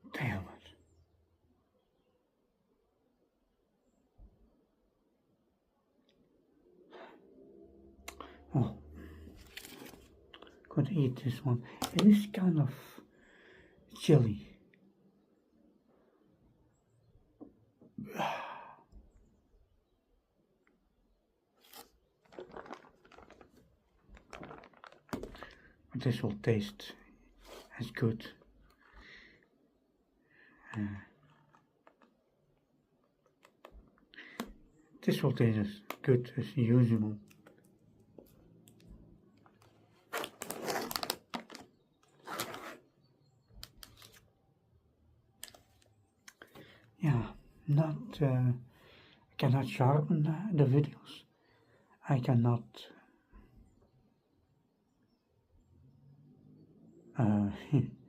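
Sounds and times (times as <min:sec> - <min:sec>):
person sighing: 0:18.0 - 0:19.0
food wrapper crinkling: 0:21.6 - 0:25.8, 0:39.5 - 0:42.8
small clicks and rustles: 0:21.6 - 0:25.8, 0:43.5 - 0:44.3.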